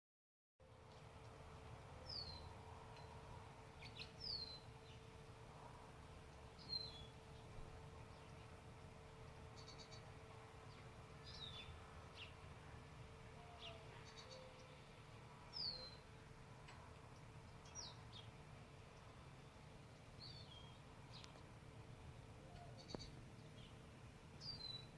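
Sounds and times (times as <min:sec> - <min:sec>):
faint low hum: 0:00.6 - 0:24.9
small birds chirping: 0:00.8 - 0:05.4, 0:06.0 - 0:12.6, 0:13.3 - 0:24.9
bird trills: 0:13.4 - 0:14.9.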